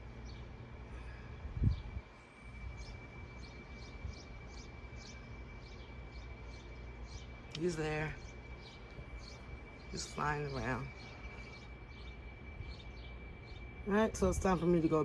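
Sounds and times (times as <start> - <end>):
small birds chirping: 0.0 - 15.0
wind rumble on microphone: 1.1 - 4.4, 9.0 - 15.0.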